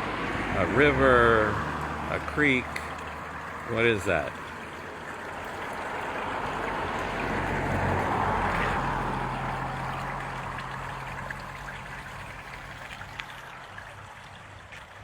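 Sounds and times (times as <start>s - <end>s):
brook babbling: 0.0s - 15.0s.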